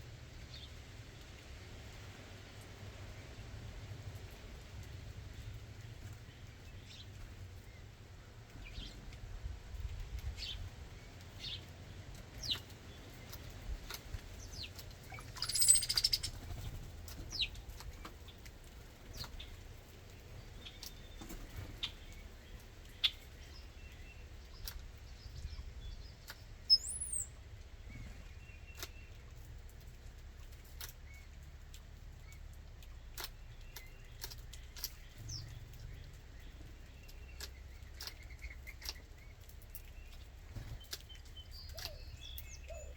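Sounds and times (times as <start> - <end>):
songbirds chirping: 0.0 - 42.9
harsh bird call: 15.2 - 16.3
whistled bird call: 15.2 - 16.3, 26.7 - 27.4.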